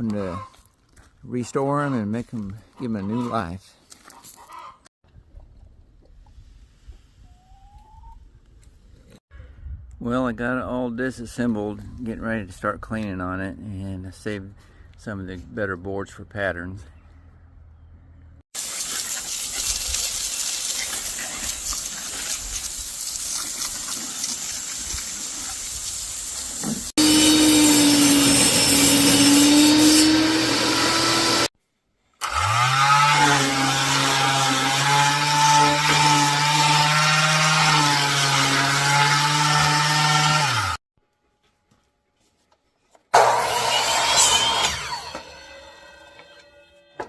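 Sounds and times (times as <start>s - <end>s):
hissing scrub of power tool: 26.6s - 31.5s, 43.2s - 45.8s.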